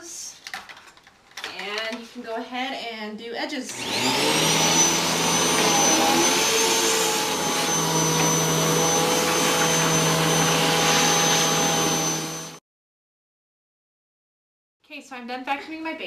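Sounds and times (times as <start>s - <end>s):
vacuum cleaner motor whining: 3.7s - 12.6s.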